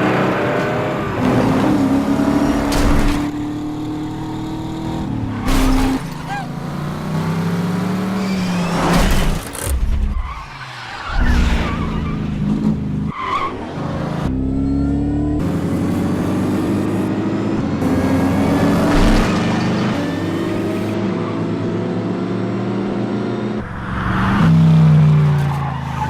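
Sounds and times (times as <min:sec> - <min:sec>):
car engines revving hard: 0:00.0 - 0:09.8, 0:10.9 - 0:26.0
tyres squealing and skidding: 0:04.6 - 0:07.2, 0:07.8 - 0:14.0, 0:23.6 - 0:26.0.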